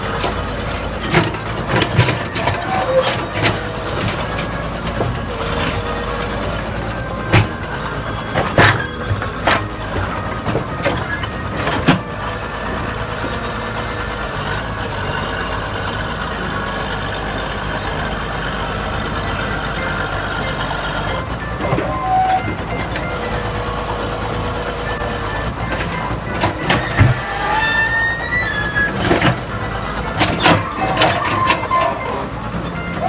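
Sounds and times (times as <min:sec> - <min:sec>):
truck engine rumble: 0:00.0 - 0:33.0.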